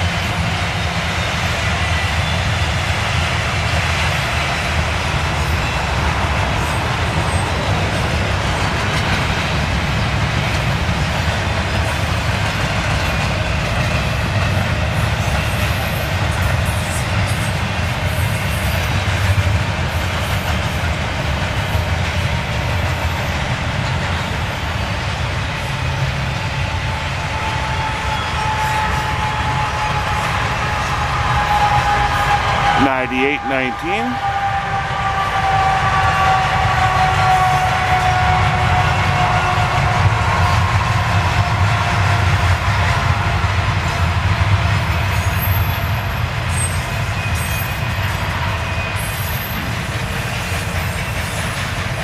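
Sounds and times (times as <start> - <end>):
steel wheels rumbling on rail: 0.0 - 32.8, 33.7 - 52.0.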